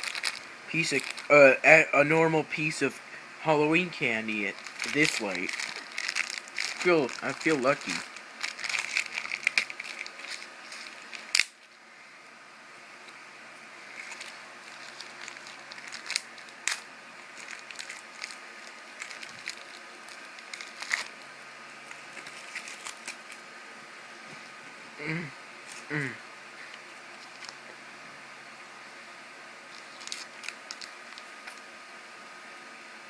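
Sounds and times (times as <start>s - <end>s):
candy wrapper crinkling: 0.0s - 1.4s, 4.4s - 11.7s, 13.8s - 21.2s, 21.8s - 23.4s, 29.7s - 31.6s.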